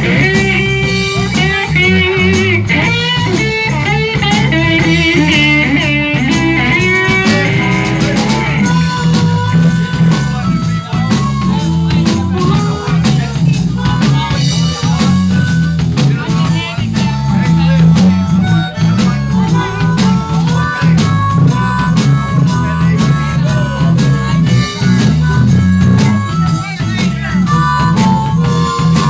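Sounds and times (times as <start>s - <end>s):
electric guitar solo: 0.0s - 13.2s
blues band playing: 0.0s - 29.0s.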